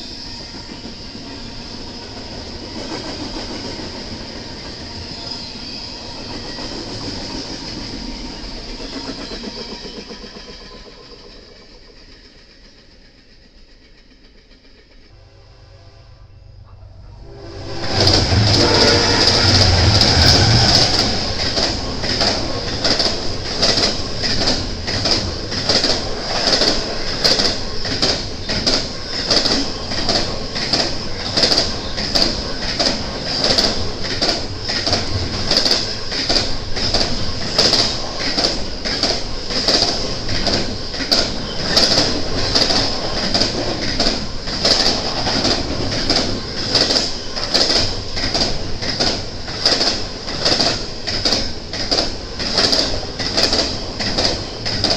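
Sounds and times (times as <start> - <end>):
train wheels clicking over rail joints: 0.0 - 15.2, 17.7 - 54.9
high-pitched whine: 15.1 - 22.0.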